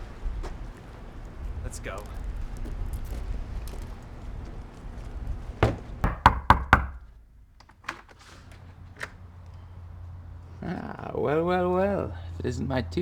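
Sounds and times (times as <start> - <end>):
knocking on a door: 5.6 - 7.2.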